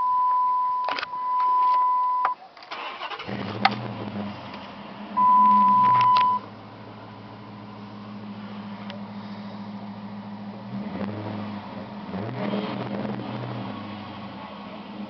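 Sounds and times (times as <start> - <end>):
dashboard warning tone: 0.0 - 2.4, 5.2 - 6.5
car engine cranking and idling: 0.9 - 15.0.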